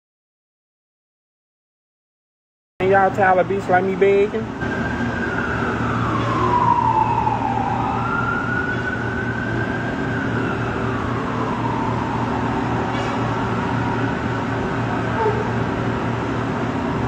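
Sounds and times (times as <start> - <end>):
siren wailing: 4.5 - 17.0.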